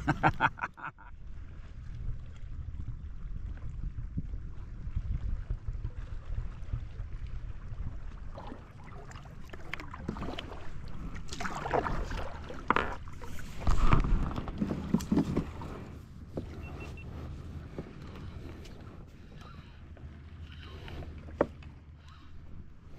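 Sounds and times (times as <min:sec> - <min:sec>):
low wind rumble on microphone: 0:00.0 - 0:22.9
water splashing around kayak: 0:00.0 - 0:22.9.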